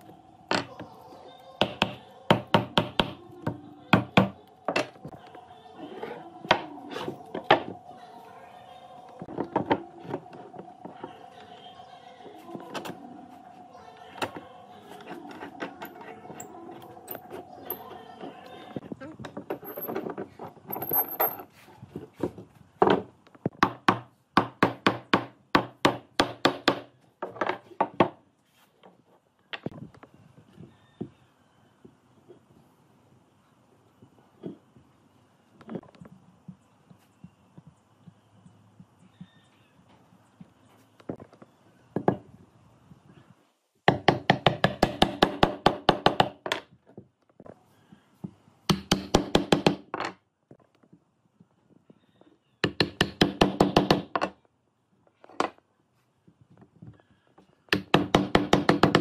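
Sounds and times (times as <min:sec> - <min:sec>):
hammering on wood: 0:01.6 - 0:03.2, 0:23.6 - 0:26.9, 0:43.9 - 0:46.5, 0:48.7 - 0:50.0, 0:52.6 - 0:54.3, 0:57.7 - 0:59.0.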